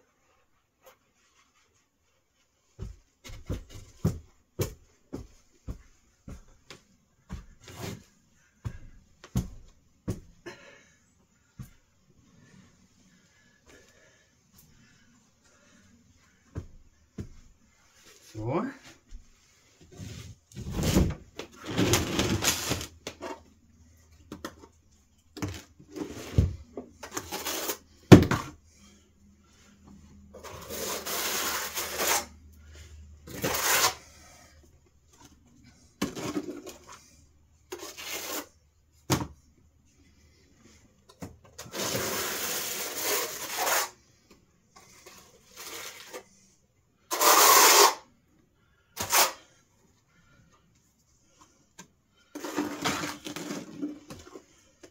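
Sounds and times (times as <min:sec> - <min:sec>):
scraping and rustling strokes: 0:29.7 - 0:34.6, 0:36.4 - 0:38.6, 0:41.7 - 0:48.0.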